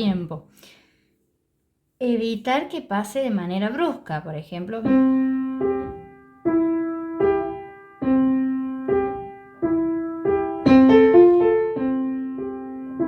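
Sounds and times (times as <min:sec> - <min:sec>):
piano playing slow melody: 0:04.9 - 0:13.0.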